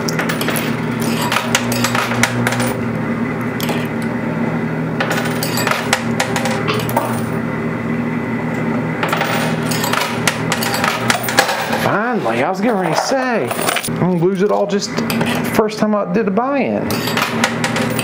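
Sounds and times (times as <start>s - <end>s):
machine hum: 0.0s - 18.0s
coins clinking on metal: 0.1s - 2.8s, 5.0s - 7.3s, 9.0s - 11.8s, 16.9s - 18.0s.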